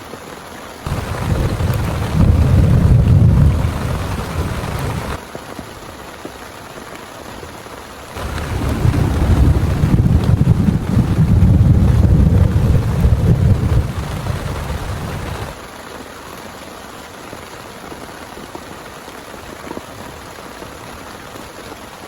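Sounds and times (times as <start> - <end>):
heavy rain falling: 0.0 - 22.0
thunder rumbling: 0.9 - 5.2, 8.2 - 15.6.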